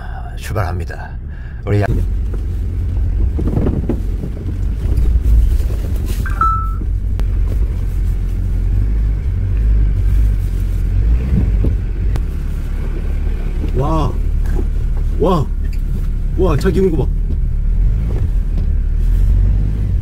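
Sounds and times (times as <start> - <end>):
engine rumbling low: 0.0 - 20.0
short high beep: 6.3 - 6.8.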